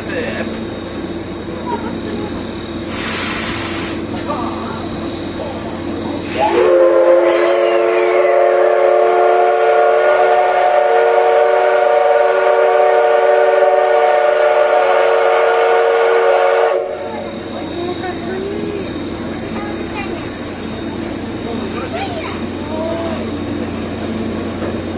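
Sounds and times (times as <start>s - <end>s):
steam locomotive whistle: 2.9s - 4.1s, 6.2s - 17.4s.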